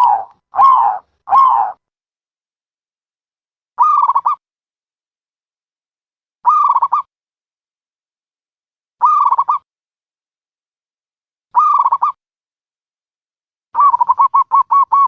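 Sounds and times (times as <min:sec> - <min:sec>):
dove cooing: 0:00.0 - 0:01.8, 0:13.8 - 0:15.0.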